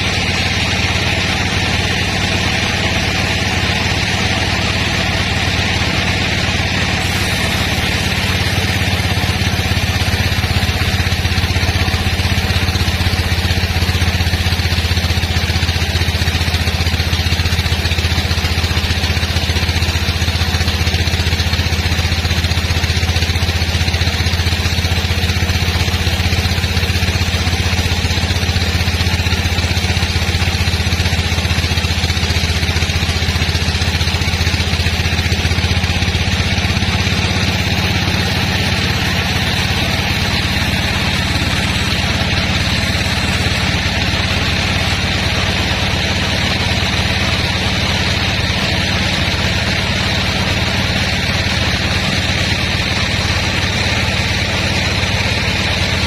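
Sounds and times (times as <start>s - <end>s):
sawmill engine drone with hiss: 0.0s - 56.0s.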